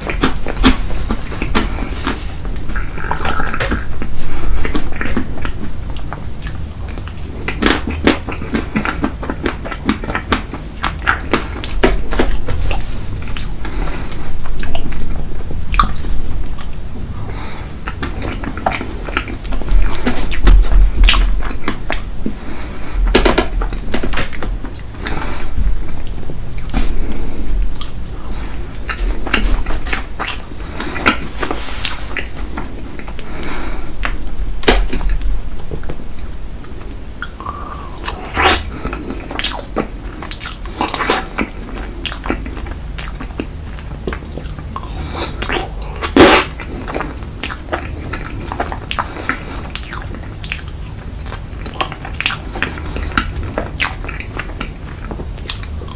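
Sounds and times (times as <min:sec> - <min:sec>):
clicking mouth sounds: 0:00.0 - 0:15.1, 0:15.7 - 0:16.8, 0:34.0 - 0:55.9
biting and chewing: 0:00.0 - 0:55.9.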